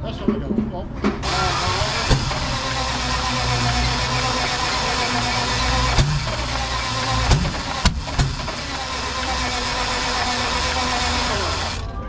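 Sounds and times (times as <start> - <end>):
sharp engine pops: 1.0 - 8.8
engine cranking without starting: 1.2 - 12.0.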